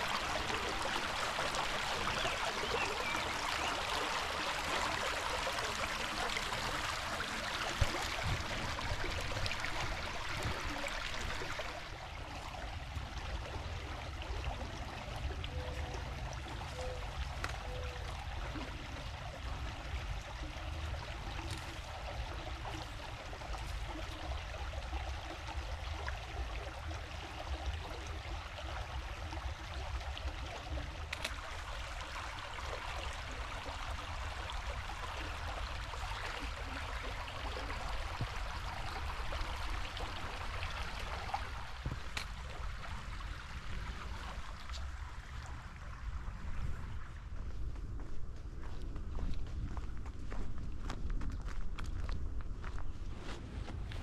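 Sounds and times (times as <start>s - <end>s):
creek babbling: 0.0s - 47.6s.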